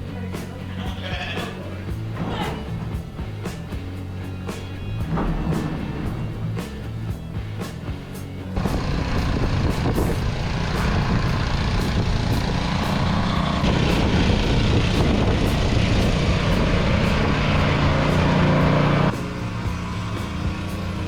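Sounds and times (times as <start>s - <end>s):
snow blower engine under load: 8.6s - 21.0s.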